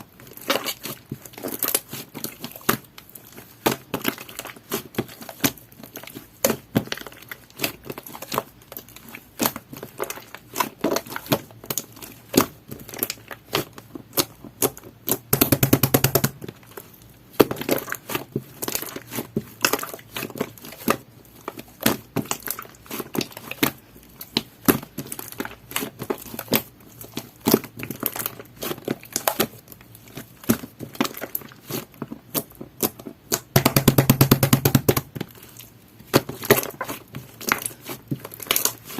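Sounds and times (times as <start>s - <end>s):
crackling squishes: 0.1s - 33.9s, 34.9s - 38.9s
slime squishing with clicks and pops: 30.3s - 38.9s.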